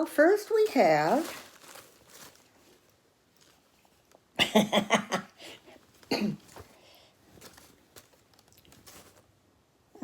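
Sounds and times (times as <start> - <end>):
woman coughing: 6.1 - 6.6.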